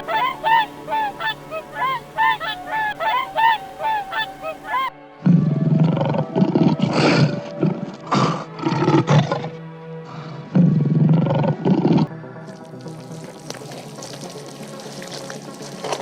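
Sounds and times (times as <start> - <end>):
geese honking: 0.0 - 4.9
big cat roaring: 5.2 - 9.5, 10.5 - 12.1.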